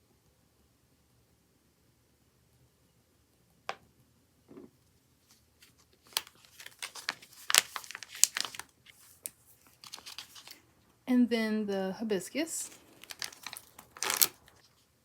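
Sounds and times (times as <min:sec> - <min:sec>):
packaging crinkling: 0:05.7 - 0:10.6, 0:12.6 - 0:14.7.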